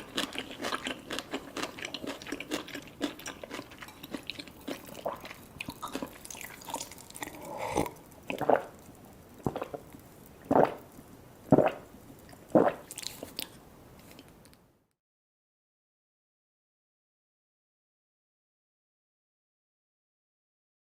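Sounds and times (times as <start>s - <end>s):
biting and wet chewing: 0.0s - 10.8s, 11.5s - 14.3s.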